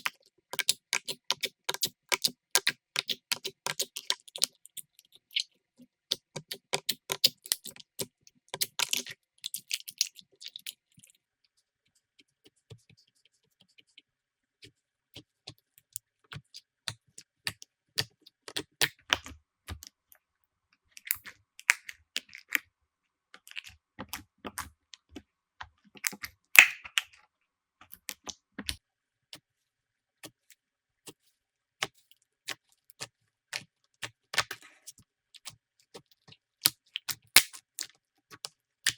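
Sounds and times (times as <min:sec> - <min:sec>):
slime clicking and crackling: 0:00.0 - 0:05.5, 0:06.1 - 0:10.8, 0:26.0 - 0:27.1, 0:36.6 - 0:38.9.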